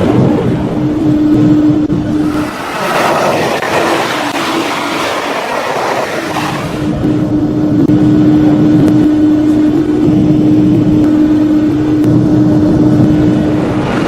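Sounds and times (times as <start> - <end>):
wheels rumbling on rail: 0.4 - 14.0
model train motor hum: 2.2 - 6.9.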